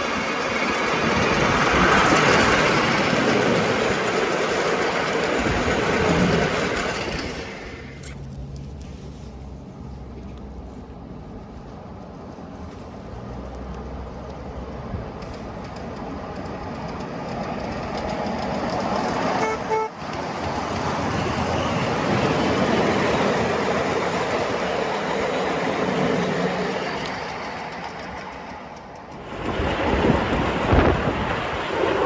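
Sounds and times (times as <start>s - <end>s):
miniature train rumbling on track: 0.0s - 8.8s, 10.2s - 32.0s
train horn toots: 19.4s - 20.1s.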